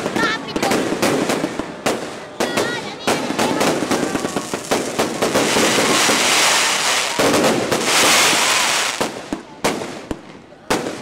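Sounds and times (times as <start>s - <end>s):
fireworks bangs: 0.0s - 11.0s
fireworks crackling: 0.0s - 11.0s.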